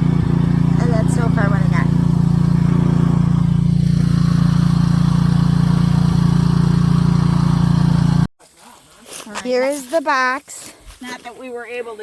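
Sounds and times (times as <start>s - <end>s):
engine running steadily: 0.0s - 8.3s.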